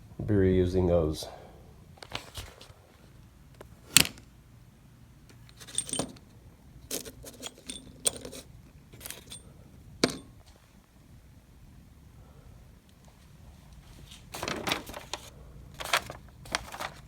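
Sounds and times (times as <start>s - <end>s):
ball bearings clinking on metal: 5.5s - 6.2s, 6.9s - 10.4s.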